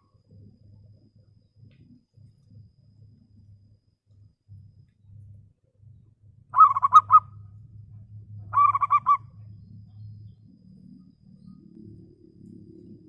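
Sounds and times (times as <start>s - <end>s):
faint low hum: 0.0s - 13.0s
dove cooing: 6.6s - 7.2s, 8.5s - 9.2s.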